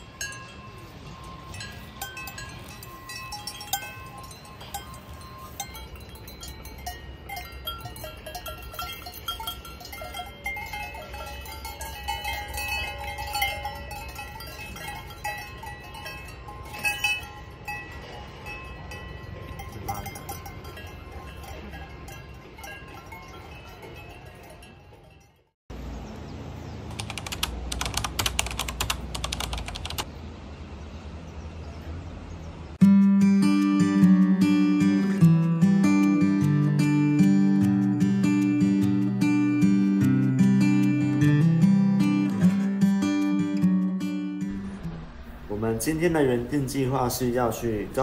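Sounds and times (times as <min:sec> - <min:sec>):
livestock bells clanging: 0:00.0 - 0:25.6, 0:32.8 - 0:44.8.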